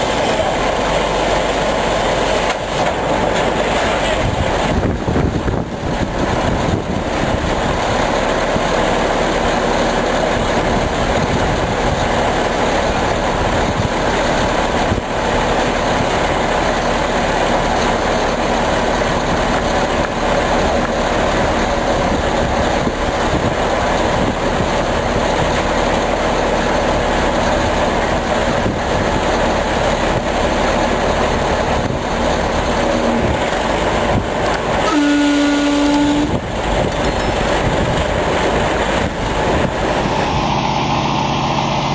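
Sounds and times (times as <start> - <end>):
truck diesel engine running: 0.0 - 41.9.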